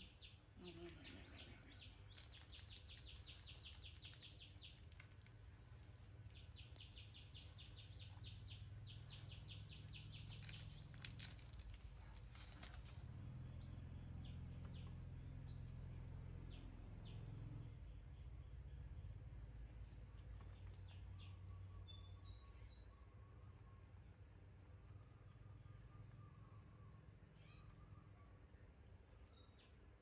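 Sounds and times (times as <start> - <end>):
bird chirping in rapid trills: 0.0 - 12.7
low steady background hum: 0.0 - 30.0
plastic snack wrapper crackling: 2.0 - 5.4, 10.3 - 12.9.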